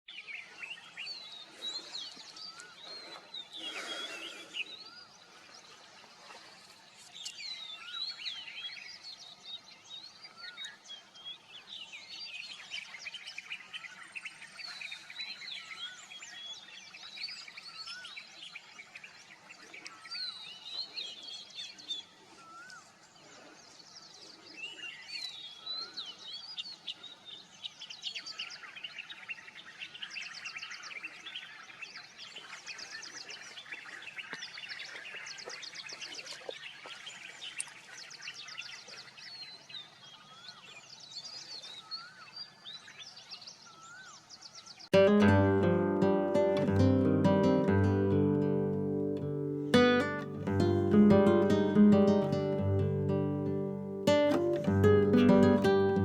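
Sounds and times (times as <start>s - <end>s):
birds chirping and singing: 43.5s - 56.0s.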